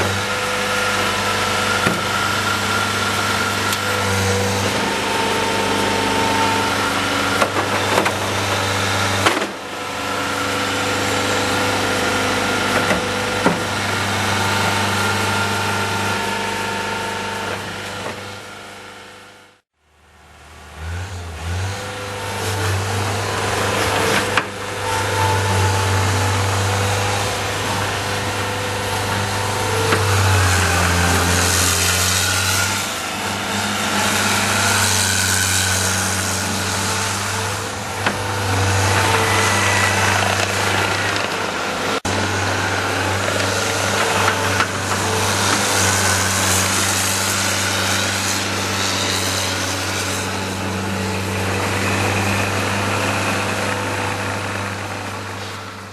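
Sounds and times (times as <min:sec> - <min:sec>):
diesel engine running under load: 0:32.7 - 0:48.8.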